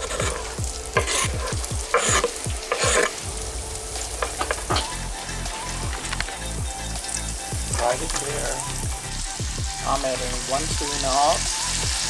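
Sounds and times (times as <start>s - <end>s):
spoon scraping pan: 0.0s - 8.8s
onions sizzling in hot oil: 0.0s - 12.0s.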